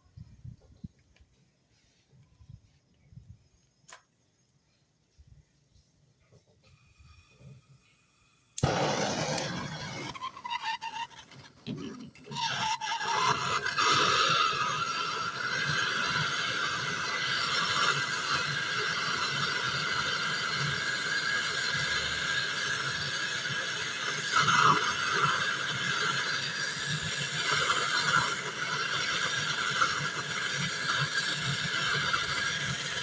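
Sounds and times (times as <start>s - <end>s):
gas torch flame hissing: 6.6s - 33.0s.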